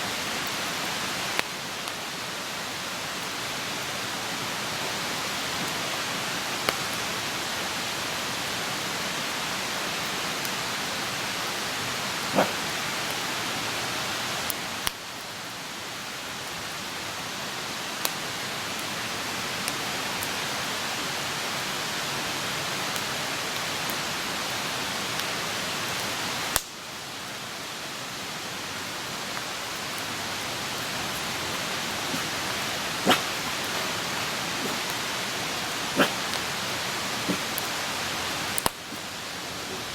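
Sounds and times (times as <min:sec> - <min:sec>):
campfire hissing: 0:00.0 - 0:39.9.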